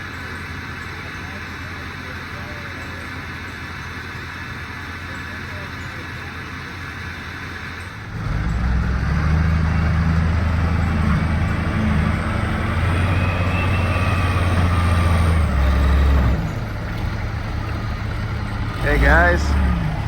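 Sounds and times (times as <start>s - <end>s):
large vehicle engine rumbling: 0.0s - 20.0s.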